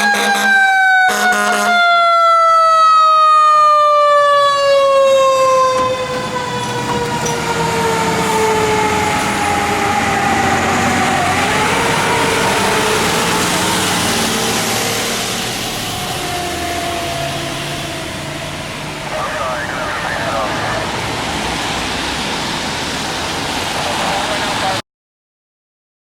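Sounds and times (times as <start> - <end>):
air horn blast: 0.0 - 1.8
diesel engine: 3.4 - 24.8.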